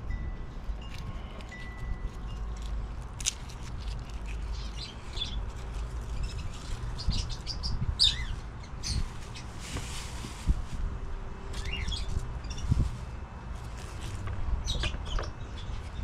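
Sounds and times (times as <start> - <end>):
birds chirping: 4.4 - 9.6, 11.5 - 13.3, 14.5 - 16.0.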